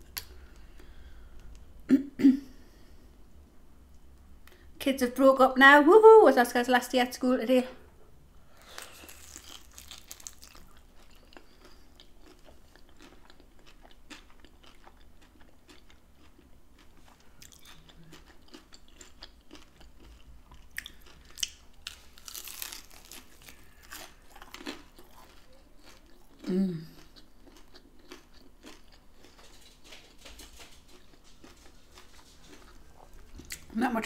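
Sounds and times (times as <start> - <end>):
close-up chewing and crunching: 8.6 - 33.8.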